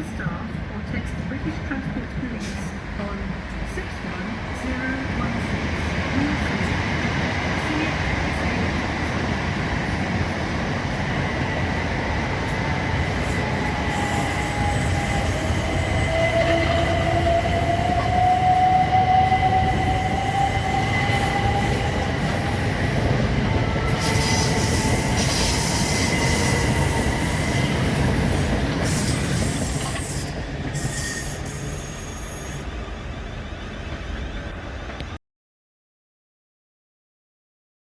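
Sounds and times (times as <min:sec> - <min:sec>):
train rail rumble: 0:00.0 - 0:35.2
wheel squeal: 0:28.8 - 0:34.4.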